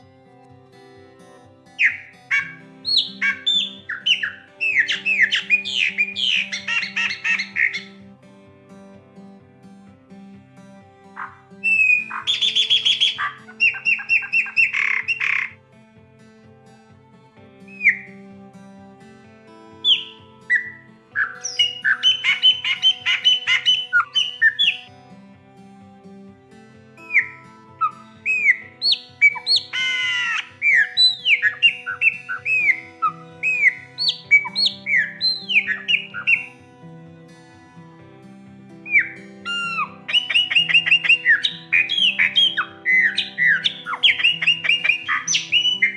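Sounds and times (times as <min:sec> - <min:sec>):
soft background music: 0:00.0 - 0:45.9
bird whistling song: 0:01.8 - 0:07.9, 0:19.9 - 0:24.8, 0:28.3 - 0:36.5, 0:38.9 - 0:45.9.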